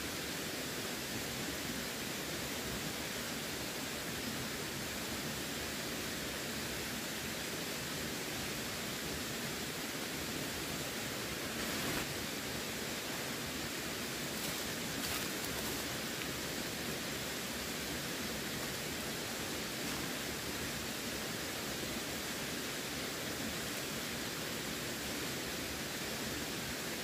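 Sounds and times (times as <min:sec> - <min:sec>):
running water flowing: 0:01.0 - 0:27.0
water splashes: 0:14.3 - 0:16.6.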